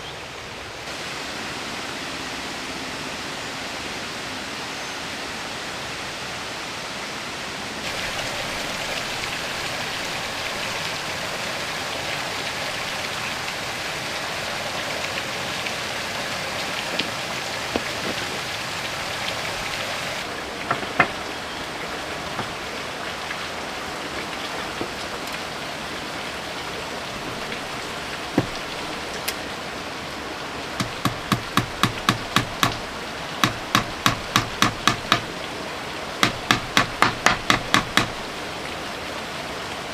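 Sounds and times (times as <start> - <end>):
heavy rain falling: 0.0 - 39.9
scattered knocks: 20.6 - 21.2, 28.4 - 28.8, 30.8 - 35.3, 36.2 - 38.3
hammer strikes: 30.8 - 32.8, 33.4 - 35.3, 36.2 - 38.2.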